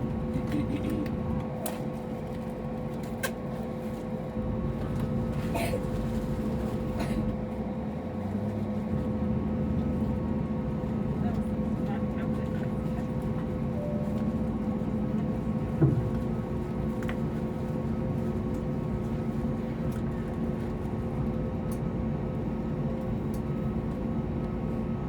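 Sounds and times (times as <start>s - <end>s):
aircraft cabin hum: 9.8s - 25.0s.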